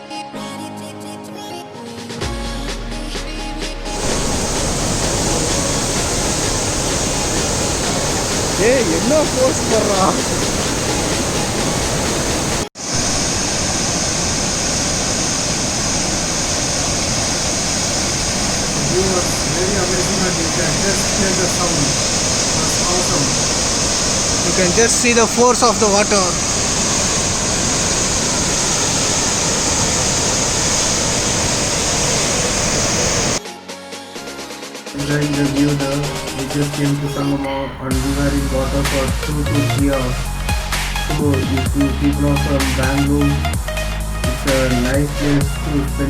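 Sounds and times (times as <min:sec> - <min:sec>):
river water rushing through rocks: 0:04.0 - 0:33.4, 0:35.0 - 0:37.4.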